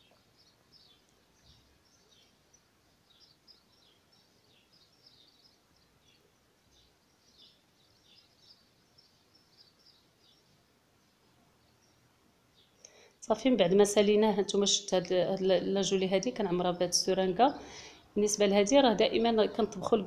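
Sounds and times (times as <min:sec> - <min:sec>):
faint small birds chirping: 0:00.0 - 0:20.0.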